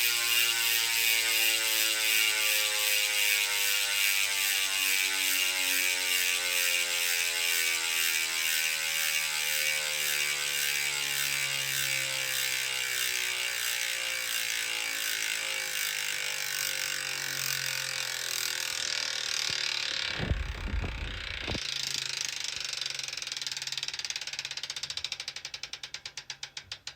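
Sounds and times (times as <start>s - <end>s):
bicycle hub ratchet buzzing: 0.0s - 26.9s
brief low rumble: 20.1s - 21.6s.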